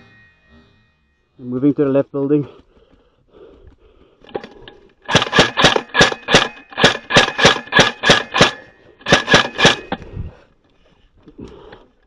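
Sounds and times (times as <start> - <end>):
airsoft gun firing single shots: 5.1 - 10.0.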